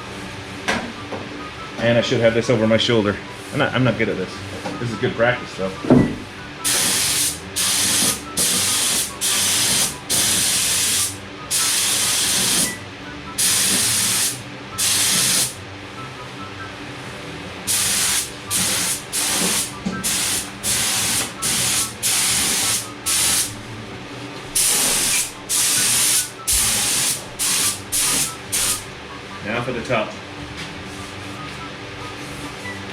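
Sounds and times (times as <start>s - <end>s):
spray gun hissing bursts: 6.6s - 12.7s, 13.4s - 15.6s, 17.7s - 23.5s, 24.6s - 28.8s.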